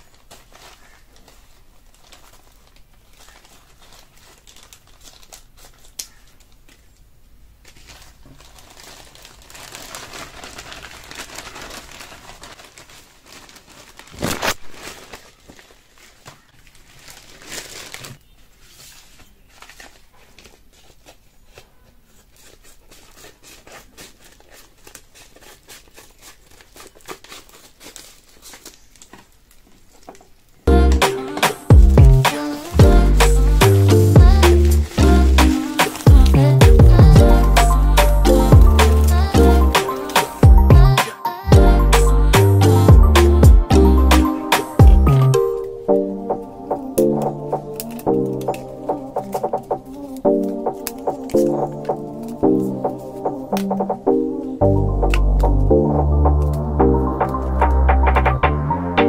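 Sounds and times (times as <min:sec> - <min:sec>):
packaging crinkling and rustling: 0:00.0 - 0:36.6, 0:38.4 - 0:41.4, 0:47.0 - 0:53.8.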